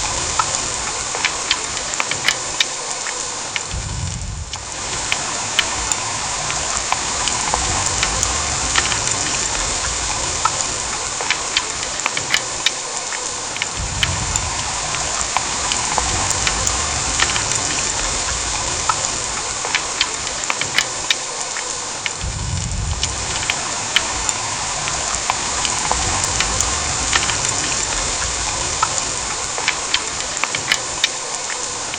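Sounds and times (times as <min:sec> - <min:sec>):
heavy rain pouring: 0:00.0 - 0:31.9
raindrops pattering on surfaces: 0:00.0 - 0:31.9
low rumble: 0:03.7 - 0:11.1, 0:13.7 - 0:19.6, 0:22.2 - 0:29.5.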